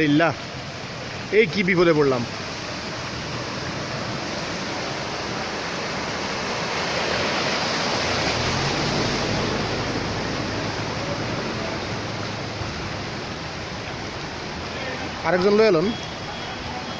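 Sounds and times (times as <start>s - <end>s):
water rushing through street: 0.0s - 16.9s
low engine hum: 2.2s - 14.7s.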